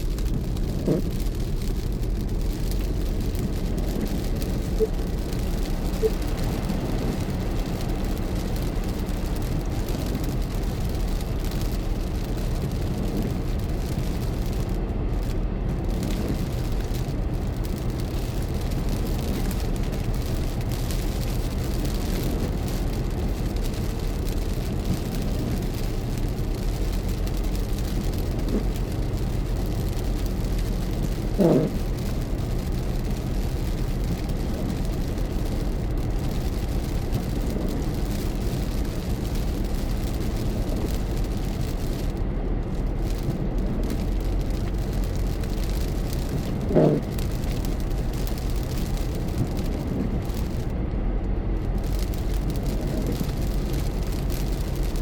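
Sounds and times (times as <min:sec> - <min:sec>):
car engine rumble: 0:00.0 - 0:55.0
tyre noise on road: 0:00.0 - 0:55.0.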